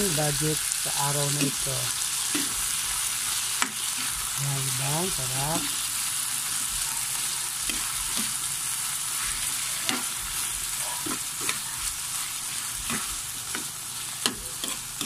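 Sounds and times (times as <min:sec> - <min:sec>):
food sizzling in a pan: 0:00.0 - 0:15.0
metal spatula scraping a pan: 0:09.1 - 0:15.0.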